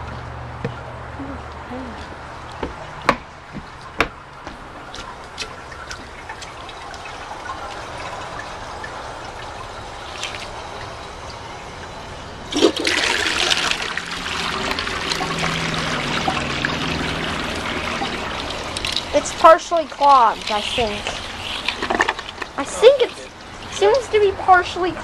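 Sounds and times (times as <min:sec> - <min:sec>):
toilet flushing: 0:05.6 - 0:25.0.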